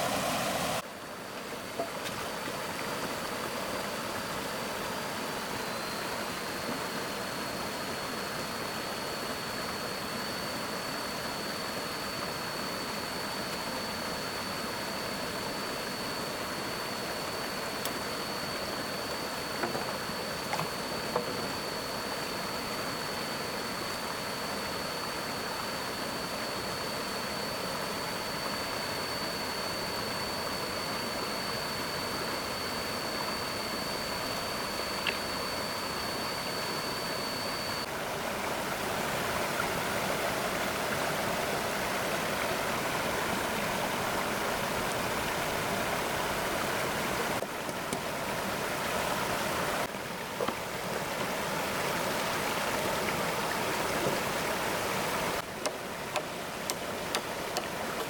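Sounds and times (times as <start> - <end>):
flowing stream rushing: 0.0 - 0.8, 37.9 - 58.0
high-pitched whine: 3.3 - 58.0.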